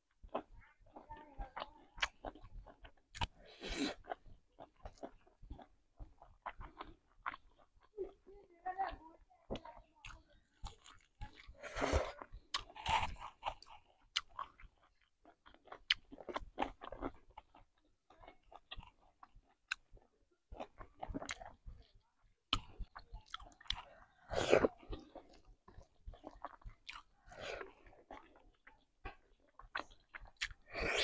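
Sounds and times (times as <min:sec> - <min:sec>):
person chewing: 0:00.1 - 0:08.3, 0:10.0 - 0:31.0
wet mouth clicks: 0:29.1 - 0:31.0.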